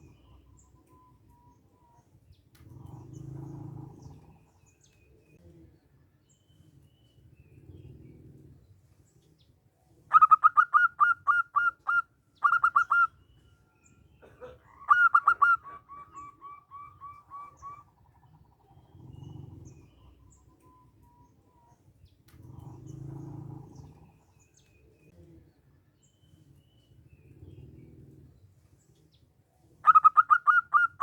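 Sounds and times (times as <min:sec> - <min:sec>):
dove cooing: 0:00.0 - 0:02.0, 0:02.6 - 0:05.8, 0:10.0 - 0:13.3, 0:14.2 - 0:25.6, 0:26.3 - 0:31.0.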